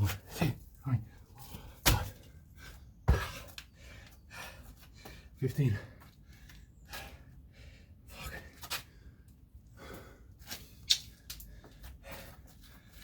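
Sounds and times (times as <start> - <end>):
man breathing hard and gasping: 1.2 - 13.0.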